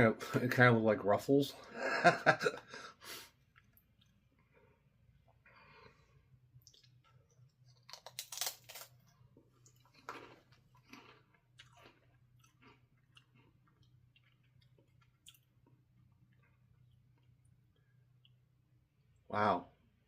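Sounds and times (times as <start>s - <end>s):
potato chips crunching: 6.6s - 15.8s.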